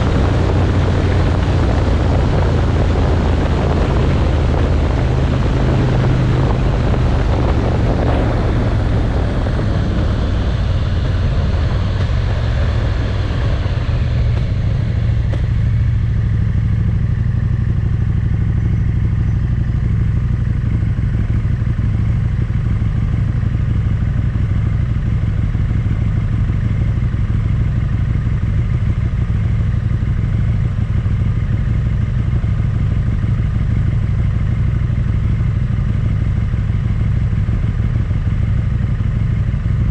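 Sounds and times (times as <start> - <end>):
wind rush over microphone: 0.0 - 17.2
motorcycle engine: 0.0 - 39.9.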